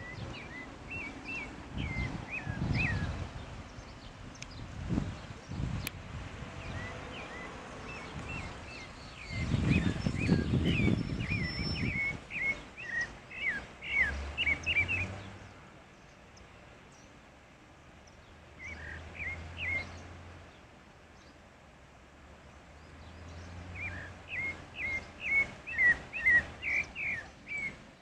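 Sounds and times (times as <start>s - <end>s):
low rumbling noise: 0.0s - 16.1s
thrush singing: 5.3s - 15.6s, 23.0s - 28.0s.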